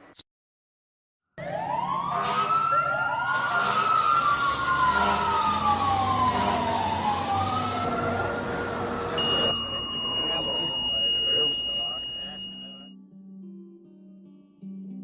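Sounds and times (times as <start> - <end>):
siren wailing: 1.4 - 12.9.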